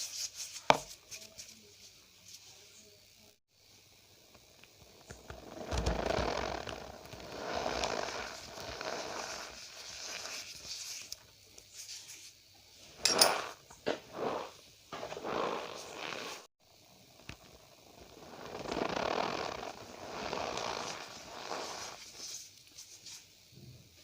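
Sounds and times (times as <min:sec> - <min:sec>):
cornstarch rubbed by hand: 0:00.0 - 0:02.9, 0:05.4 - 0:12.4, 0:13.1 - 0:16.5, 0:18.1 - 0:23.3
sharp cornstarch squeaks: 0:07.0 - 0:12.3, 0:18.2 - 0:23.0.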